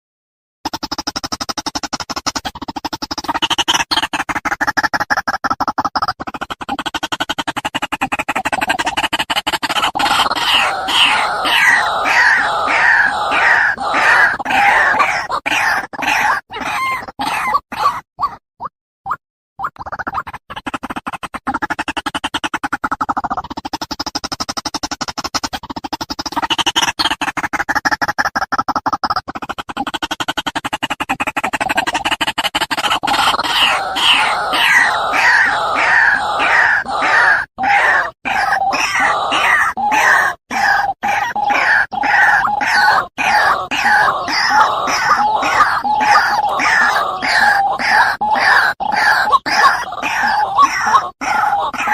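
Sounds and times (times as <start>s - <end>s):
harsh bird cries: 9.8s - 18.0s, 33.0s - 51.9s.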